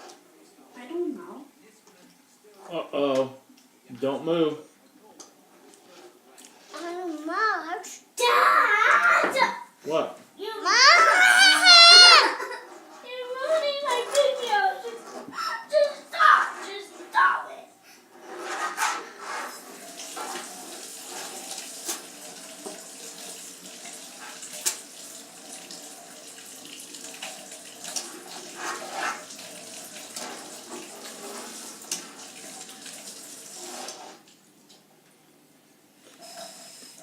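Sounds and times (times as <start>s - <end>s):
water running from sink tap: 10.8s - 12.6s, 19.2s - 34.4s, 36.2s - 37.0s.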